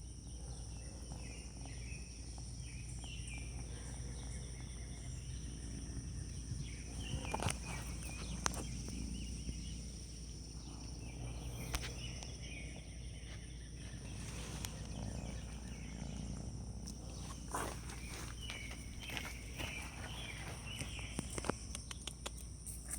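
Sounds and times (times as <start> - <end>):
sharp clicks: 21.2 - 22.8.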